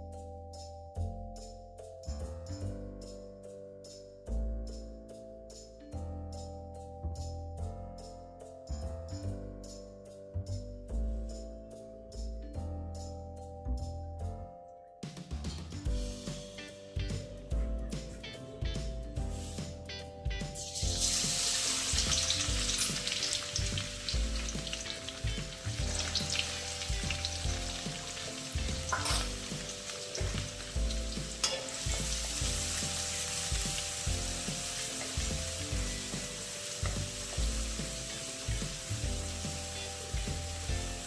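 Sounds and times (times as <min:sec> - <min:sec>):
soft background music: 0:00.0 - 0:41.0
food sizzling in hot oil: 0:20.4 - 0:41.0.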